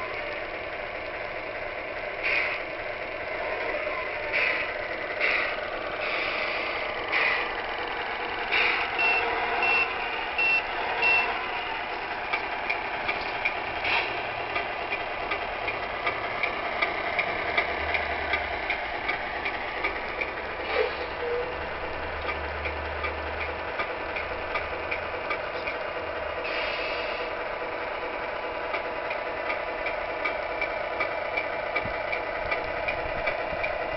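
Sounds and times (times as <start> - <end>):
synthesized truck engine running: 0.0 - 33.9
high reversing beeps: 9.0 - 11.7.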